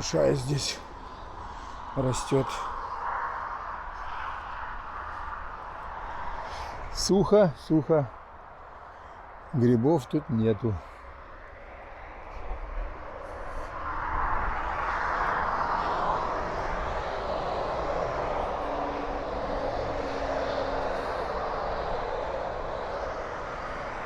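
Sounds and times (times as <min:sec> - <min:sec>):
motorway traffic rushing past: 0:00.0 - 0:24.0
vehicle passing close: 0:11.7 - 0:24.0.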